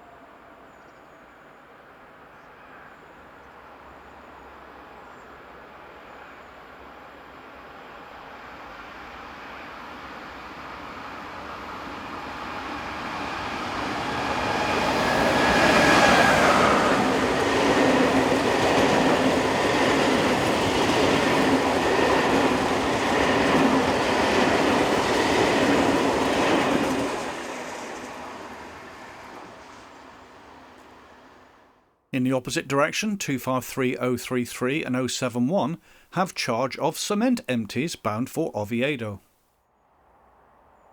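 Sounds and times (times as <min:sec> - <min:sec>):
electric locomotive passing: 0:06.7 - 0:31.6.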